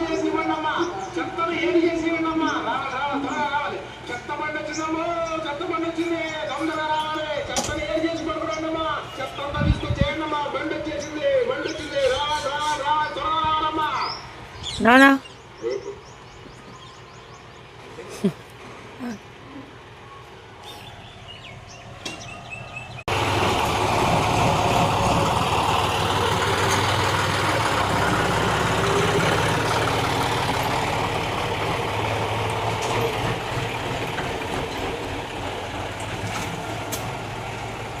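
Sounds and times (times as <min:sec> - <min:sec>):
tractor engine running: 0:20.8 - 0:38.0.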